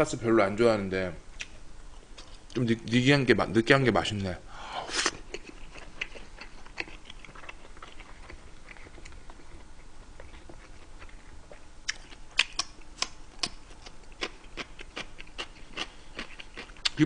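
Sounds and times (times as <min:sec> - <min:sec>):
person chewing food: 0:04.9 - 0:17.0.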